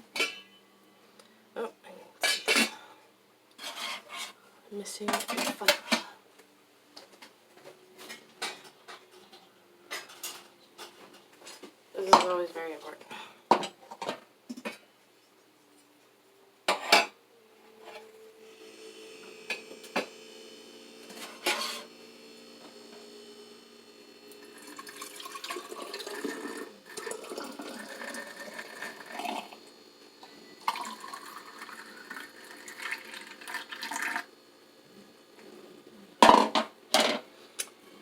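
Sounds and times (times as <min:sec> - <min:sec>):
liquid pouring into feeder: 0:24.3 - 0:29.7, 0:30.6 - 0:34.3.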